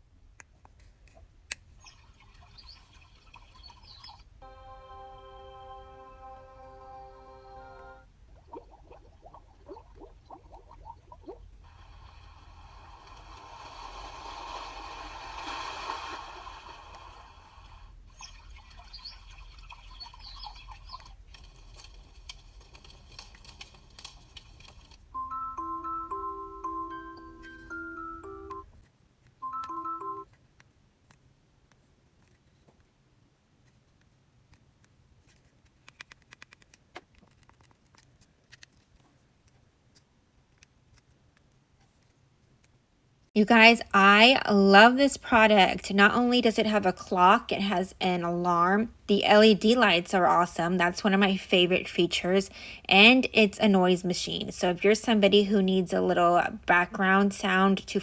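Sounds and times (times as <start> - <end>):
chiming melody: 4.4 - 8.0, 25.2 - 28.6
rushing water-like white noise: 11.4 - 18.6.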